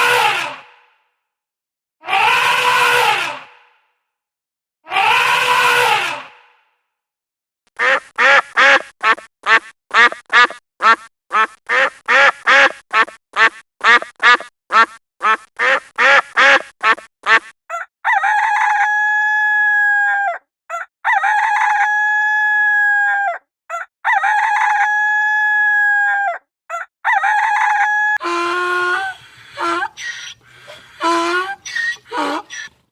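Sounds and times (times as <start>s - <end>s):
duck quacking: 7.8s - 17.5s, 28.2s - 32.8s.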